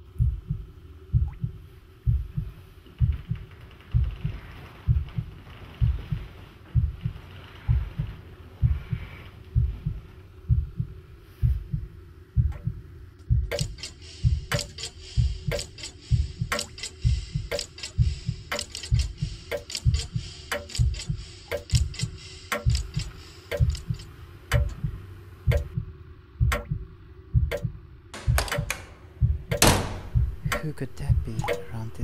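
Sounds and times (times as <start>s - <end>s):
heartbeat: 0.0s - 32.0s
sharp irregular clicks: 12.5s - 24.8s, 25.5s - 25.8s, 26.5s - 26.8s, 27.5s - 31.8s.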